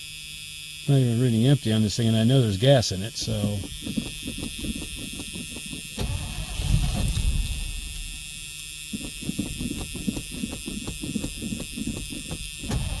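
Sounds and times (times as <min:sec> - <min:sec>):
high-pitched buzz: 0:00.0 - 0:13.0
starter cranking engine: 0:03.2 - 0:13.0.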